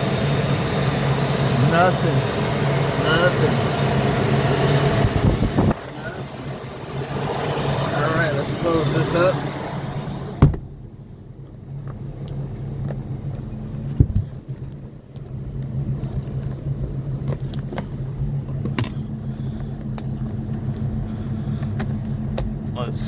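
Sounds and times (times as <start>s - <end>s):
engine idling: 0.0s - 23.0s
heavy clunk: 10.4s - 10.9s, 13.9s - 14.4s.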